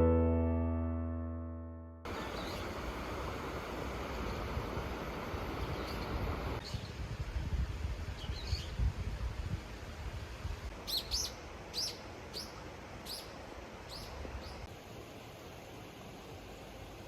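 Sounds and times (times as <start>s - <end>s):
small bird chirping: 10.9s - 14.7s.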